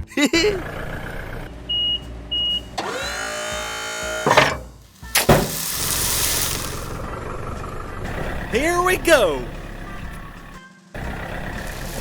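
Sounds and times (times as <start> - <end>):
hissing machine noise: 2.6 - 7.1
motor winding up into whine: 2.8 - 4.6
sharp knocks: 4.3 - 5.6.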